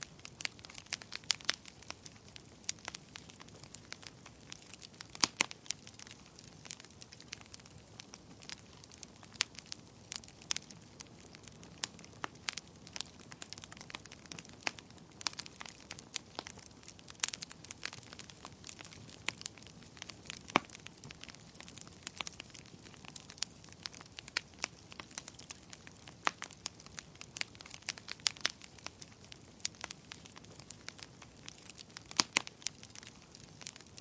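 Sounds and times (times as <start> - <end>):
fire crackling and popping: 0.0 - 34.0
fire hissing: 0.1 - 33.8.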